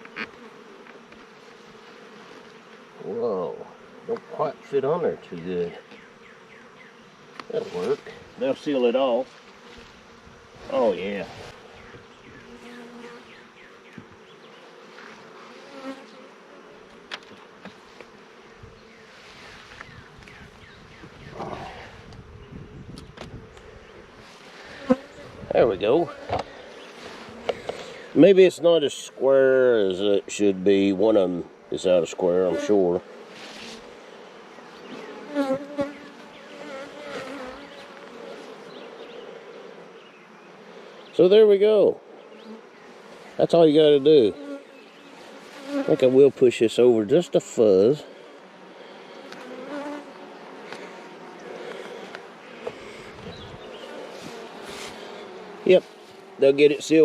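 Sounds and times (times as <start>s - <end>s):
bees buzzing: 0.0s - 57.0s.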